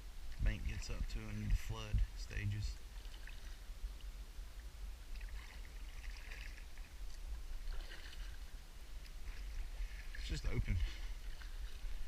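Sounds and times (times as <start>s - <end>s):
paddle splashing in water: 2.9s - 3.6s, 5.1s - 12.0s.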